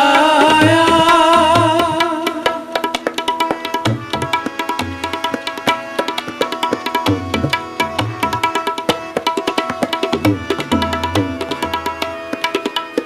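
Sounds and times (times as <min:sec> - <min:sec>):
person singing: 0:00.0 - 0:02.9
harmonium holding notes: 0:00.0 - 0:13.0
tabla playing fast rhythm: 0:00.0 - 0:13.0
deep bayan drum strokes: 0:10.2 - 0:12.2.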